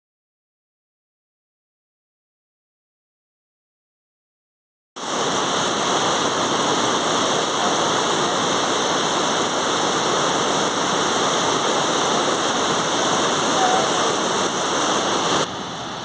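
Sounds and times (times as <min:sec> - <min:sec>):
waterfall roaring: 0:05.0 - 0:16.0.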